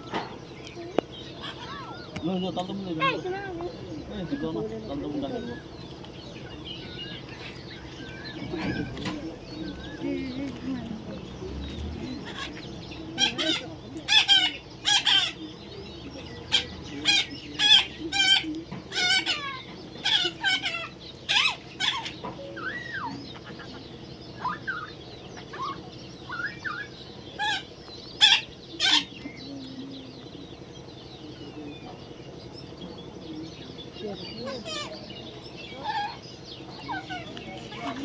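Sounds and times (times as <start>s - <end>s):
parrot squawking: 1.4s - 2.2s, 12.2s - 15.4s, 16.5s - 29.2s, 34.4s - 35.0s, 36.8s - 38.0s.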